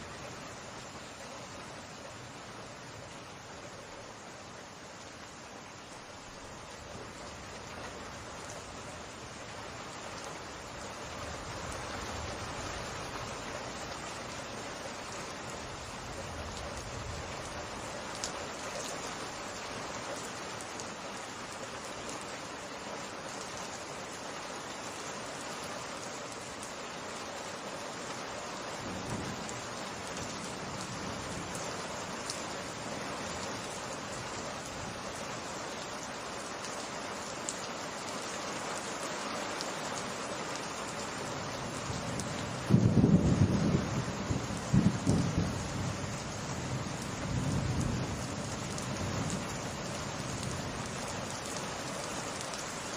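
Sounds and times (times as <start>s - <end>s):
steady rain falling: 0.0s - 52.9s
sharp raindrop ticks: 15.8s - 22.4s, 29.0s - 43.1s, 44.3s - 45.7s, 46.3s - 52.9s.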